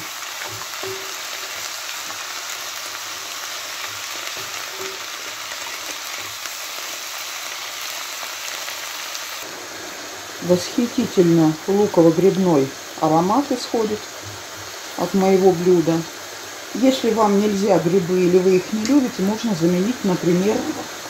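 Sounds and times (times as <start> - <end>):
vegetables sizzling in pan: 0.0 - 21.0.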